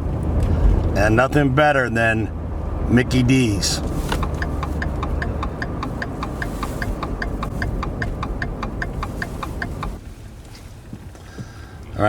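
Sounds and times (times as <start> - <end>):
low car hum: 0.0 - 12.0
turn signal ticking: 3.8 - 12.0.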